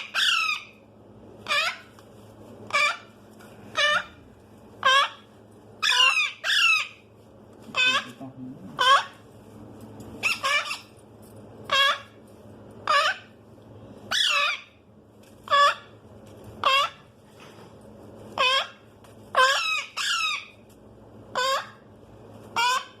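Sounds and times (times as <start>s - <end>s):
parrot chicks calling: 0.0s - 0.8s, 1.4s - 2.0s, 2.7s - 7.1s, 7.7s - 9.2s, 10.2s - 11.0s, 11.7s - 12.2s, 12.8s - 13.4s, 14.1s - 14.8s, 15.4s - 16.0s, 16.6s - 17.2s, 18.3s - 20.7s, 21.3s - 21.9s, 22.5s - 23.0s.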